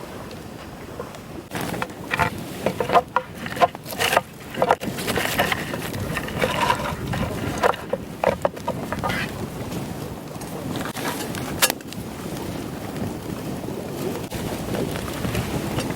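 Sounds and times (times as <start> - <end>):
objects knocking and clattering: 1.5 - 9.3
rustling: 1.5 - 9.8.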